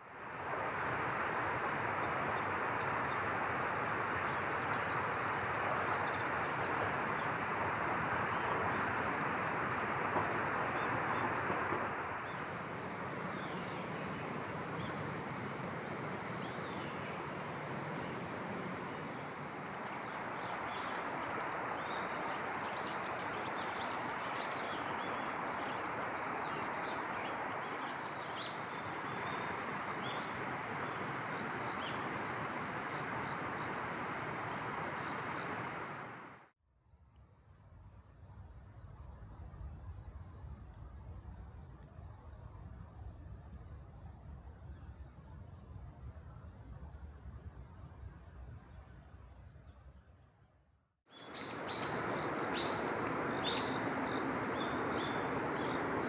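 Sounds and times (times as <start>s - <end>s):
small birds chirping: 51.1s - 56.0s
steady rushing noise: 51.3s - 56.0s.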